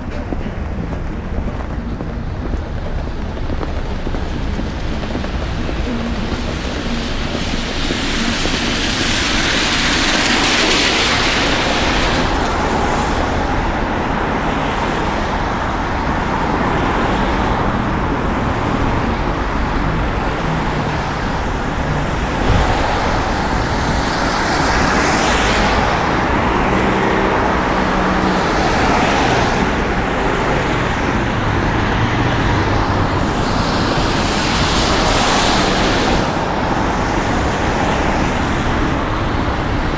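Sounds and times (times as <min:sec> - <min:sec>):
low traffic rumble: 0:00.0 - 0:39.9
car tyres hissing on wet road: 0:03.9 - 0:39.9
thump: 0:22.4 - 0:25.8.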